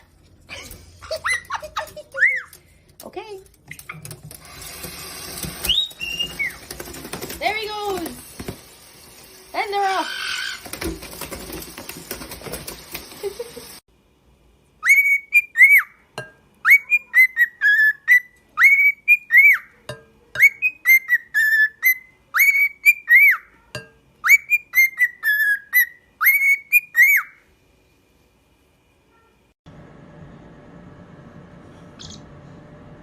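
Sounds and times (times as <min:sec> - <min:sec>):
parrot whistling a tune: 0:05.6 - 0:06.6, 0:14.8 - 0:16.0, 0:16.6 - 0:19.7, 0:20.4 - 0:23.5, 0:24.2 - 0:27.4.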